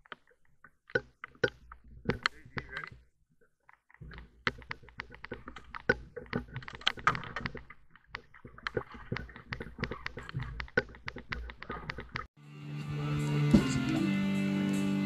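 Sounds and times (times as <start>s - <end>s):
raindrops tapping on camera: 4.0s - 12.3s.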